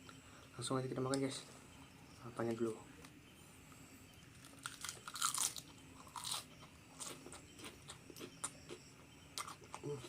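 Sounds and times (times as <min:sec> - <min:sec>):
crunchy food being chewed: 0:04.2 - 0:10.0.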